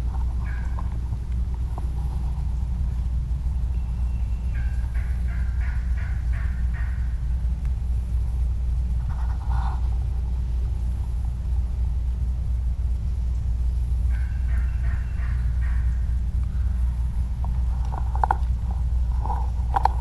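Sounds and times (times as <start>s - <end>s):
steady low rumble: 0.0s - 20.0s
wild turkey calls: 0.4s - 1.0s, 3.7s - 7.4s, 14.0s - 17.1s.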